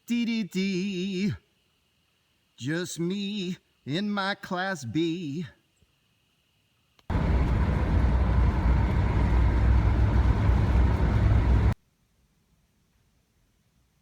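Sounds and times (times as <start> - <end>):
van engine and road rumble: 7.1 - 11.8.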